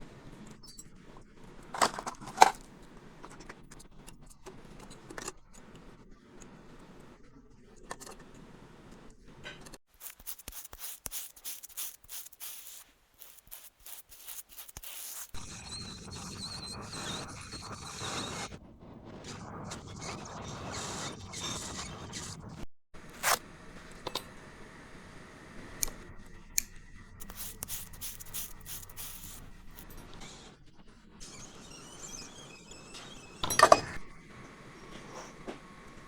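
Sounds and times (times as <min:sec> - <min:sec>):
small hand tools clicking and scraping: 0:09.6 - 0:17.2, 0:26.6 - 0:30.2.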